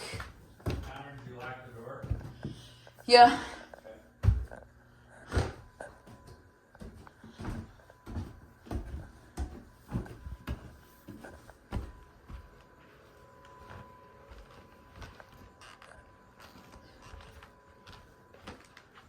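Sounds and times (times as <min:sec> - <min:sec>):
footsteps climbing stairs: 0:00.0 - 0:03.0, 0:04.1 - 0:15.8.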